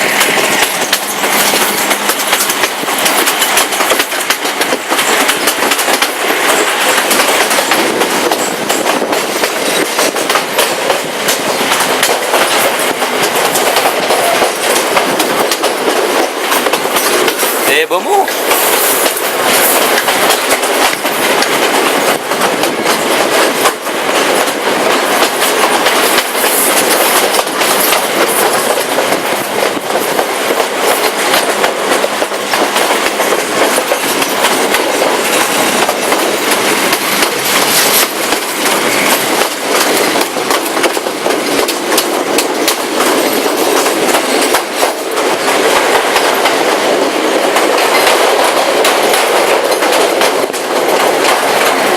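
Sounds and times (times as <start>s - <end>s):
train wheels rushing on rails: 0.0s - 51.9s
clicks over rail joints: 0.2s - 17.7s.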